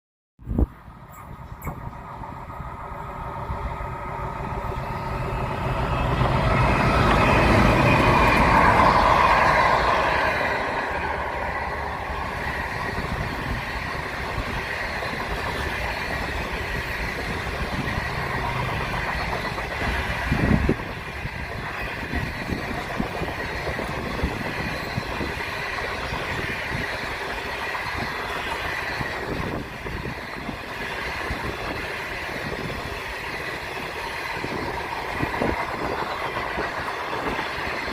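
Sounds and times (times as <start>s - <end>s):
passenger train passing: 0.4s - 37.9s.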